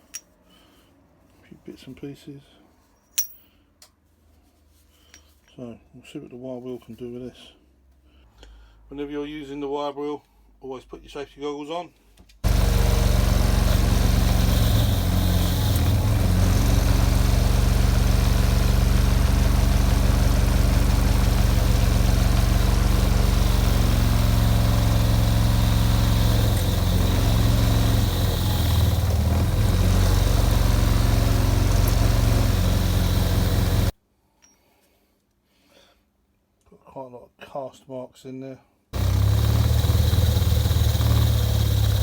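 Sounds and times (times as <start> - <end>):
electric motor running: 12.4 - 33.9, 39.0 - 42.0
wire wheel scrubbing metal: 12.4 - 33.9, 39.0 - 42.0.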